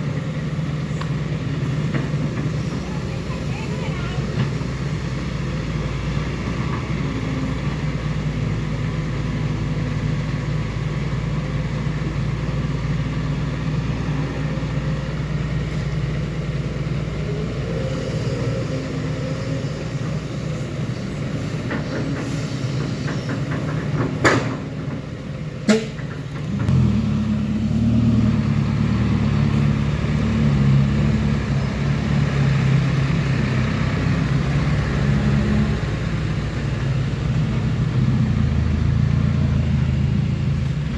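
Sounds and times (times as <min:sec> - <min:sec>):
diesel truck engine running: 0:00.0 - 0:40.9
engine revving: 0:26.4 - 0:40.9.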